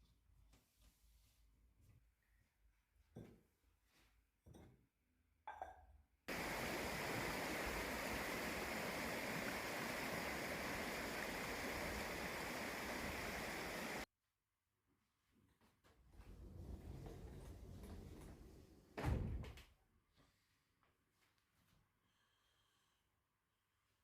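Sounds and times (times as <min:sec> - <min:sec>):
running water rushing: 0:06.3 - 0:14.1.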